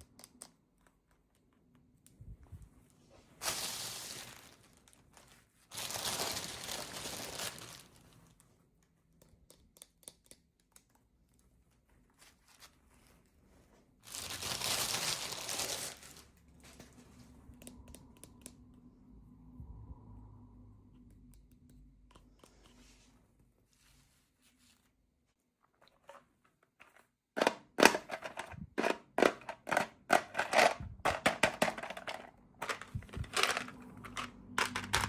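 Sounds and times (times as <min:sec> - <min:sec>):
packaging crinkling and tearing: 0:03.4 - 0:08.4, 0:14.0 - 0:16.8, 0:31.6 - 0:35.0
light clicks and taps: 0:20.8 - 0:23.0.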